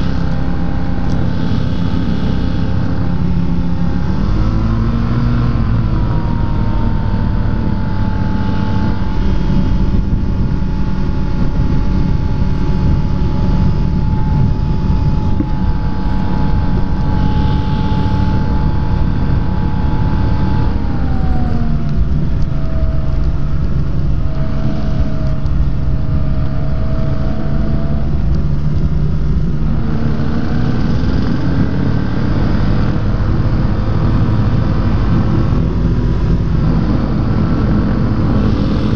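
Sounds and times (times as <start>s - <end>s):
heavy wind rush: 0.0s - 38.9s
ultralight engine and propeller: 0.0s - 38.9s.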